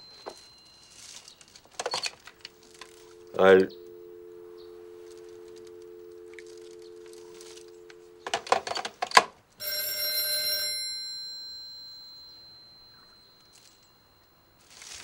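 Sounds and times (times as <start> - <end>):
telephone bell ringing: 0.0 - 8.9, 9.6 - 15.0
two-note dial tone: 0.0 - 8.9, 9.6 - 15.0.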